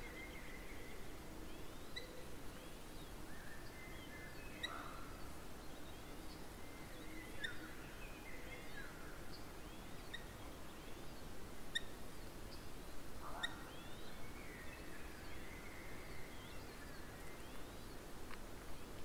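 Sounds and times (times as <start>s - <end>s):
wild birds calling: 4.2s - 5.4s, 13.2s - 16.3s.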